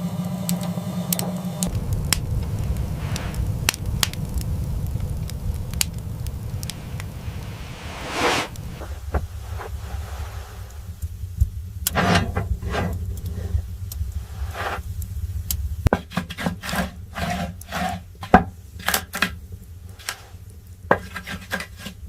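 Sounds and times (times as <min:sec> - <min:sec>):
low rumble: 0:01.6 - 0:16.0
wood scraping and rubbing: 0:06.6 - 0:10.8, 0:11.9 - 0:13.6, 0:14.3 - 0:14.9, 0:15.9 - 0:22.0.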